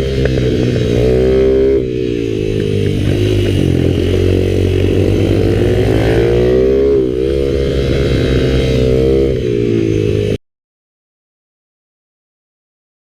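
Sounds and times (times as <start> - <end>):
mini bike engine revving: 0.0 - 10.4.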